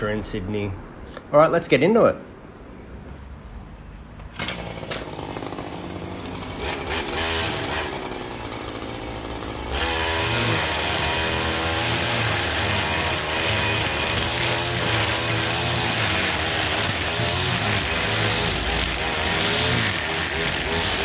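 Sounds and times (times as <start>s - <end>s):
lawn mower engine running: 4.3s - 21.0s.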